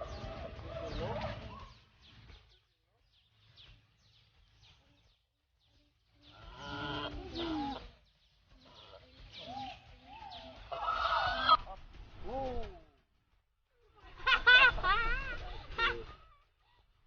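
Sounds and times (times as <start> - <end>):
bird calling: 0.0 - 2.6, 5.8 - 12.9.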